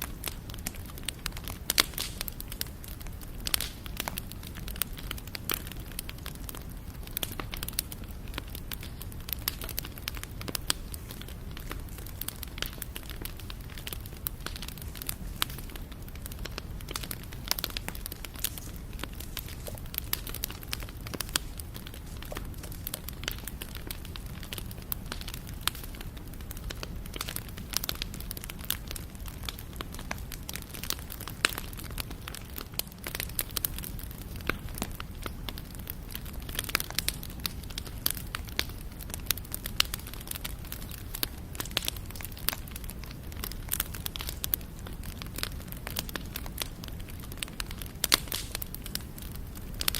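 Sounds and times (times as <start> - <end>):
campfire crackling and popping: 0.0 - 49.9.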